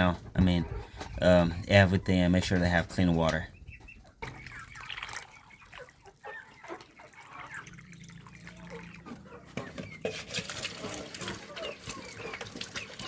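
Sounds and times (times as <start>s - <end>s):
water dripping in a container: 4.0s - 9.2s.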